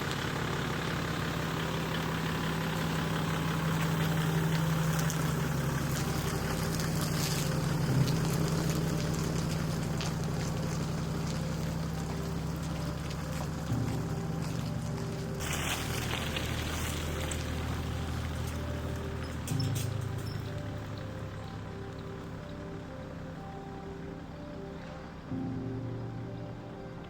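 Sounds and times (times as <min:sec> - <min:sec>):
motorboat engine running: 0:00.0 - 0:27.0
wind: 0:00.0 - 0:27.0
water rushing: 0:03.8 - 0:19.5.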